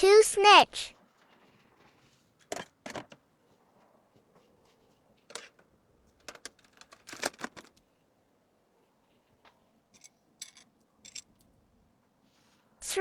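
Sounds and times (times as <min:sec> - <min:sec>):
packaging rustling and clicking: 0:05.2 - 0:07.8.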